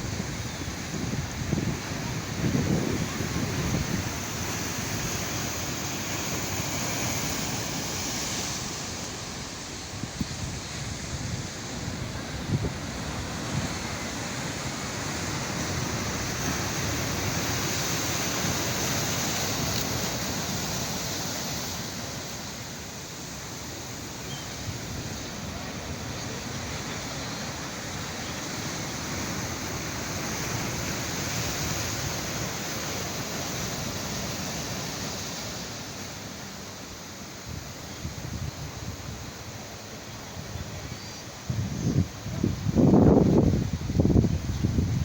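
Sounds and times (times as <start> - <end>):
wind buffeting microphone: 0.0 - 21.0, 40.3 - 45.0
sea waves washing on shore: 0.0 - 45.0.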